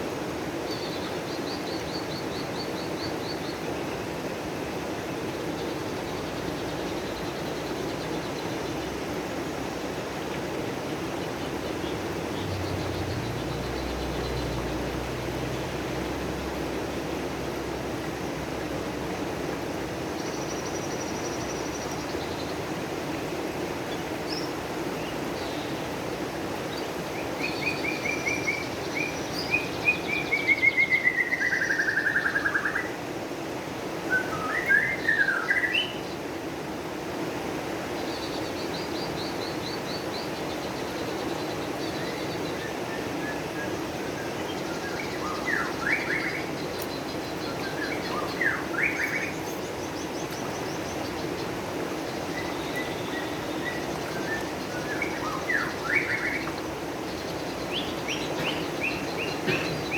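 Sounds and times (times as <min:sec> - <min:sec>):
songbird trilling and chirping: 0:38.2 - 0:59.9.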